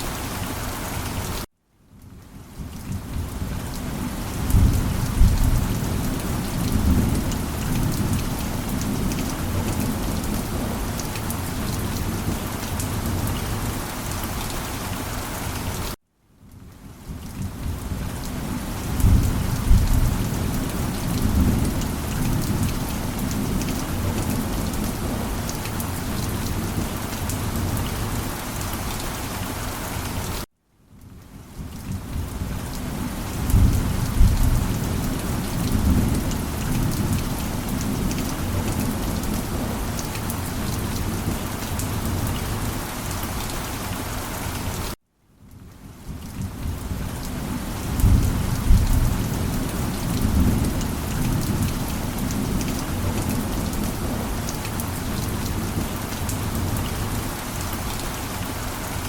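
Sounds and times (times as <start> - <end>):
heavy rain: 0.0 - 59.0
low rolls of thunder: 2.9 - 10.9, 18.8 - 25.4, 33.4 - 39.8, 47.9 - 54.3.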